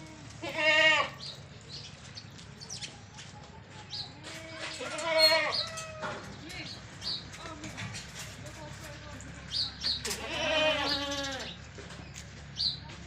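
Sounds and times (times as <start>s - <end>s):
faint goat calls: 0.0s - 1.3s, 4.3s - 6.2s, 10.1s - 11.6s
goat bleating: 0.0s - 1.3s, 4.2s - 6.8s, 10.0s - 11.6s
small birds chirping: 1.0s - 13.0s.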